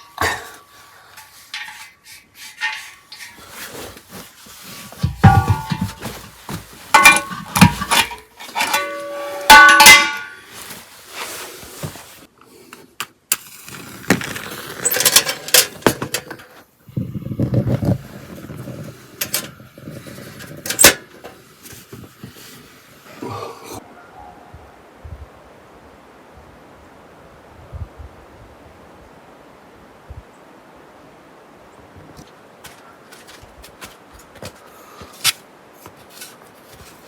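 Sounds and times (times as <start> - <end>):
metal cookware clinking: 1.2 - 3.6, 5.0 - 6.2, 6.9 - 10.5.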